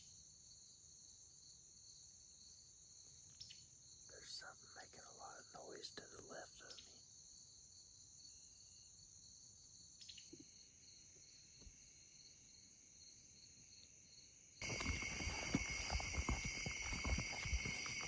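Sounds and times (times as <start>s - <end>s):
evening insects chirping: 0.0s - 18.0s
crackling and rustling: 14.6s - 18.0s.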